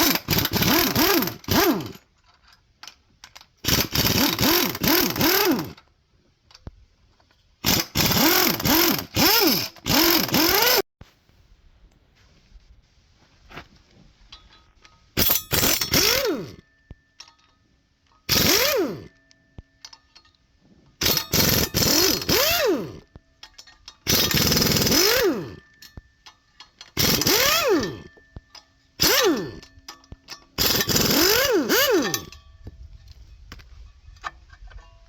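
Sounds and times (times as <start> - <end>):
impact wrench bursts: 0.0 - 2.0, 3.6 - 5.8, 7.6 - 10.8, 15.2 - 16.6, 18.3 - 19.2, 21.0 - 23.1, 24.1 - 25.7, 26.9 - 28.2, 29.0 - 29.9, 30.6 - 32.4.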